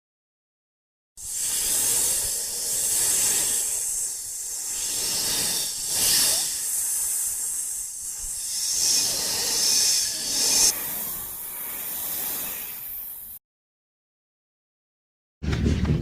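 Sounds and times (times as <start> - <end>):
high-pitched hiss: 1.2 - 13.4.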